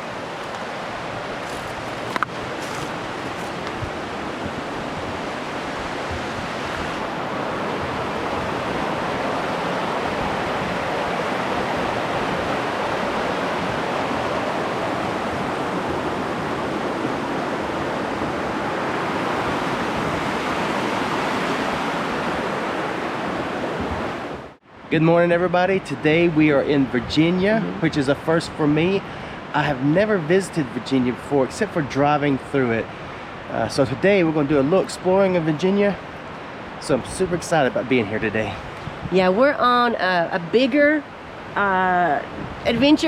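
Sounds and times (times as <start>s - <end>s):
waterfall rushing: 0.0s - 24.6s.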